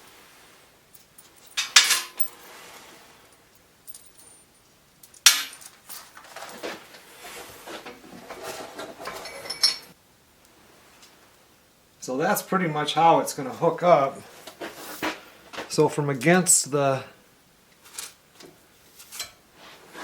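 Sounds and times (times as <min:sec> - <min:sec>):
metal hardware clanking: 0:01.0 - 0:02.4, 0:03.9 - 0:06.3.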